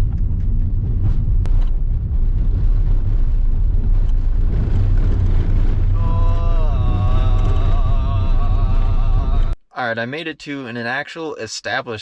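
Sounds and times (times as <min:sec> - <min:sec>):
van road and engine noise: 0:00.0 - 0:09.2.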